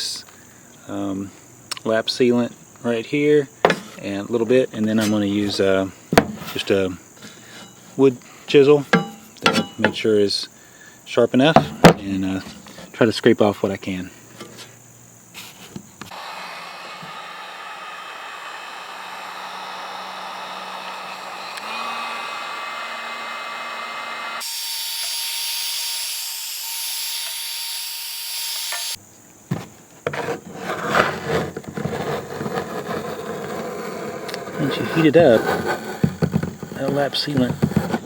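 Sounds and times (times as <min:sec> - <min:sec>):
heat gun running: 0:16.1 - 0:29.0
chisel scraping sealant: 0:30.1 - 0:38.0.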